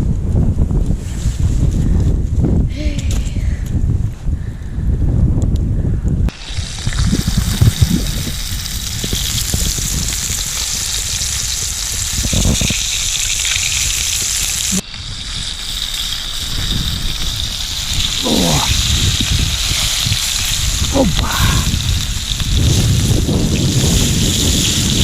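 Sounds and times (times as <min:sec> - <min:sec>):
fish sizzling in a pan: 0:06.3 - 0:25.0.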